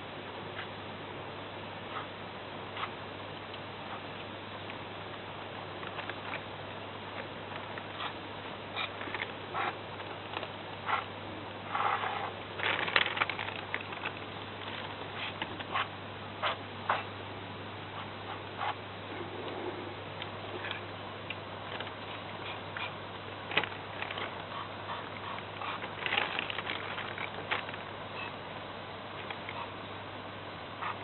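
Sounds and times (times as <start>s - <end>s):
clicks and crackles: 5.7s - 6.5s, 12.5s - 15.8s, 20.2s - 27.9s, 29.2s - 29.6s.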